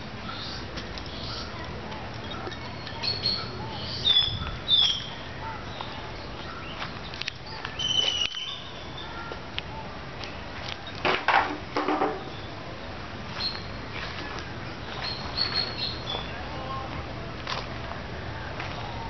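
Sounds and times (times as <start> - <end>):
birds chirping: 0.0 - 11.0, 12.0 - 17.1
steady outdoor hiss: 0.0 - 19.0.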